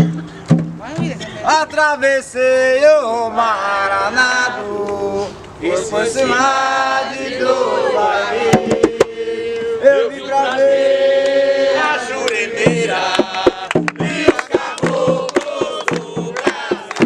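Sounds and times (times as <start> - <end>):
sharp percussion beats: 0.0 - 1.4, 8.5 - 9.2, 12.6 - 17.0
voices chanting together: 2.8 - 17.0.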